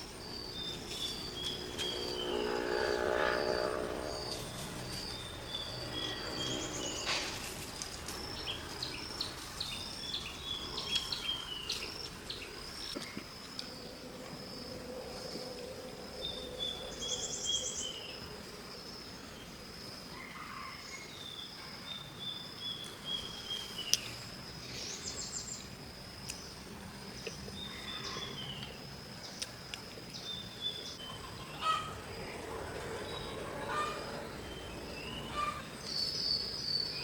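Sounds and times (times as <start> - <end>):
insect trilling: 0.0 - 15.2
bird calling: 30.9 - 32.0, 33.0 - 37.0.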